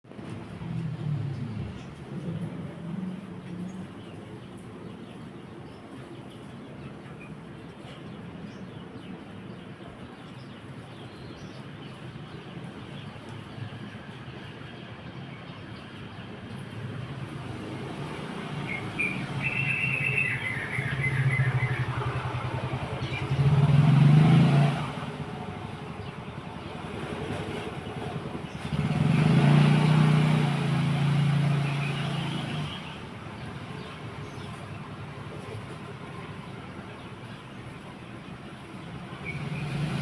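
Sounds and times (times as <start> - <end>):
motor vehicles passing: 0.1 - 7.1, 10.5 - 40.0
sparrow chirping: 18.5 - 23.8.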